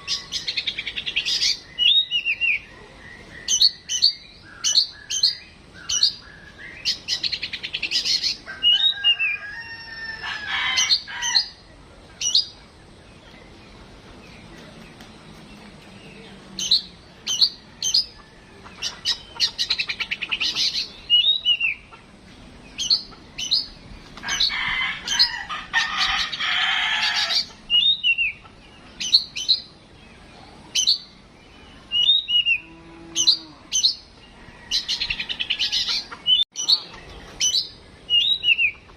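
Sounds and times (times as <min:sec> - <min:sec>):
bird singing with whistles and trills: 0:00.0 - 0:09.4, 0:14.2 - 0:21.9, 0:22.7 - 0:24.5, 0:27.2 - 0:29.8, 0:30.7 - 0:34.2, 0:35.0 - 0:38.9.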